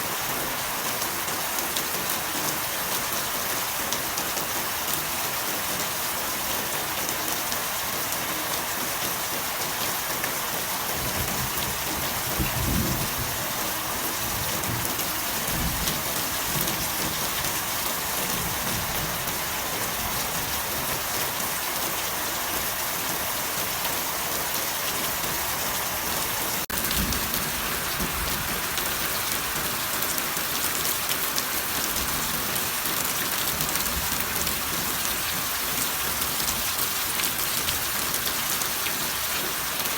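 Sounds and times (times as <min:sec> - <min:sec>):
heavy rain hissing and pattering: 0:00.0 - 0:39.9
thunder rumbling: 0:11.0 - 0:21.0, 0:26.7 - 0:29.8.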